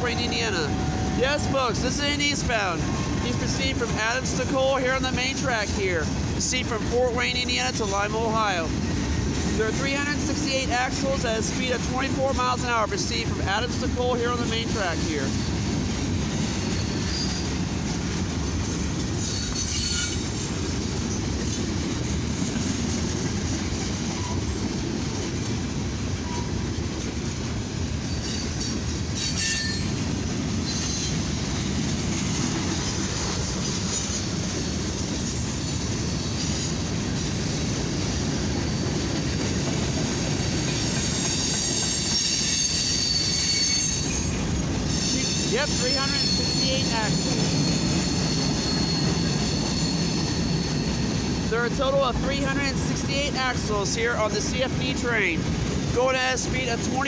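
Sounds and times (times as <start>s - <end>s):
freight train wheels clattering on rail: 0.0s - 57.0s
high wheel squeals: 16.4s - 23.3s, 27.8s - 54.6s.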